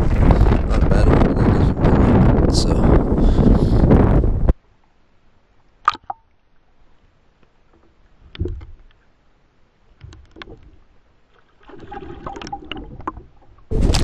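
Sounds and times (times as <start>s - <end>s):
wind hitting microphone: 0.0s - 4.6s, 13.7s - 14.0s
knocks and clattering on boat: 7.8s - 8.9s.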